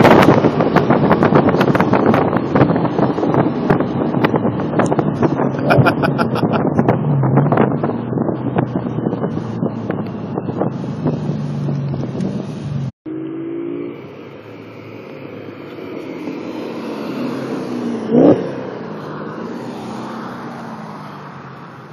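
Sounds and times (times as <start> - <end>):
car engine accelerating hard: 0.0 - 21.7.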